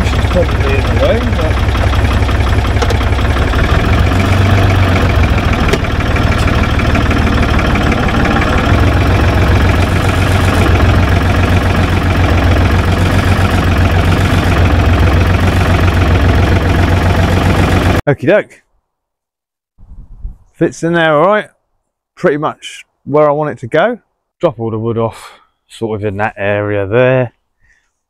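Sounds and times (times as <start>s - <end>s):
tractor engine running at low revs: 0.0s - 18.0s.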